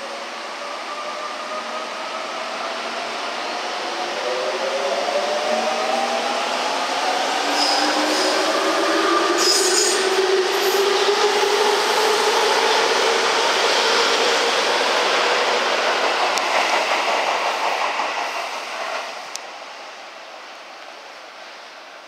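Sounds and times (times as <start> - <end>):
train wheels and running gear: 13.9 - 19.5.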